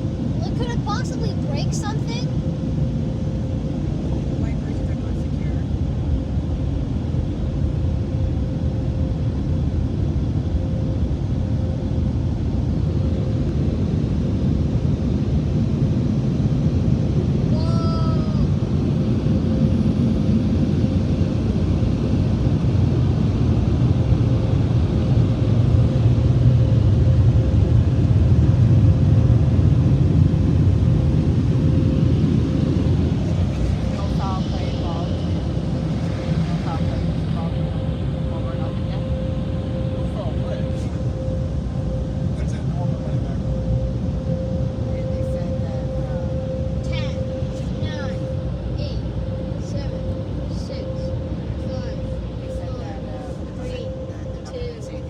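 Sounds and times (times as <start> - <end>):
faint steady hum: 23.6 - 55.0.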